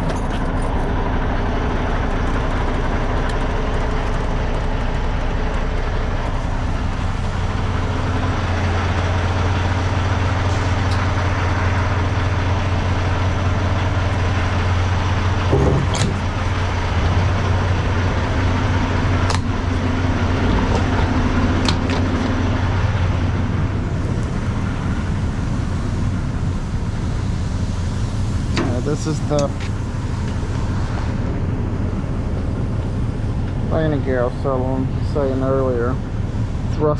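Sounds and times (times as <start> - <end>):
diesel truck engine idling: 0.0 - 36.9
sharp clicks and knocks: 15.5 - 16.3, 20.5 - 22.3.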